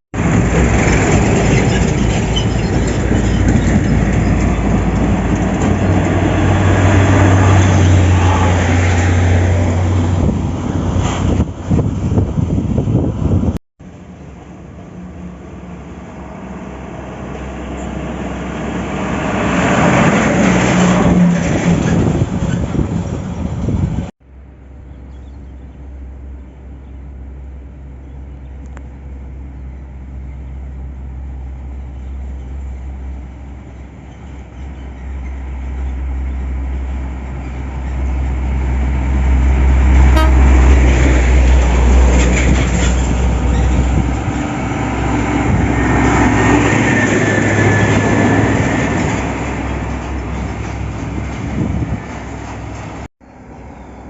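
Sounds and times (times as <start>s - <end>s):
diesel trucks driving past: 0.2s - 54.0s
truck horn toot: 40.0s - 40.7s.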